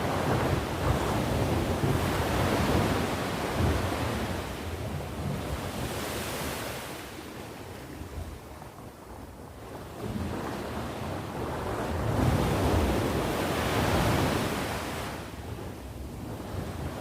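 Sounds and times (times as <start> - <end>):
sea waves breaking: 0.0 - 7.4, 10.0 - 15.4.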